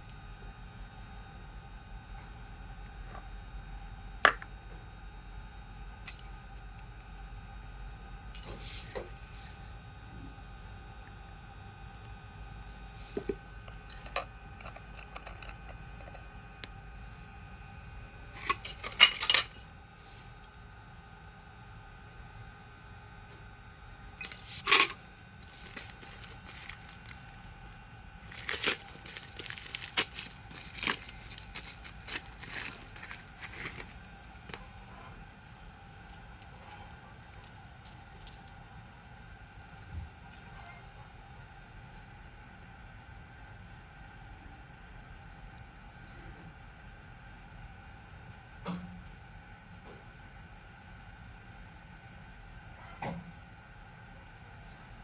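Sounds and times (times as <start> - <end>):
small metal parts clinking: 6.0 - 6.4, 8.3 - 8.6, 18.4 - 19.8, 24.2 - 34.6, 36.0 - 38.6
clicks and clinks of hard parts: 18.4 - 19.7, 24.2 - 27.4.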